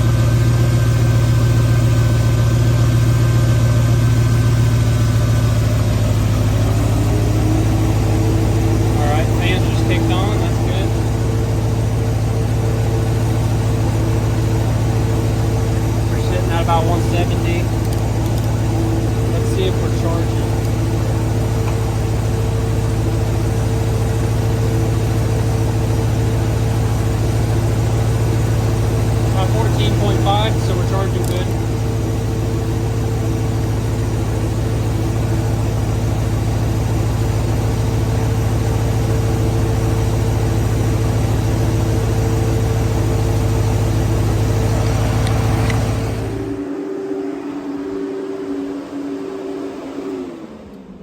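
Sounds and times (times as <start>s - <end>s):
car engine idling: 0.0s - 51.0s
faint high tone: 46.0s - 51.0s.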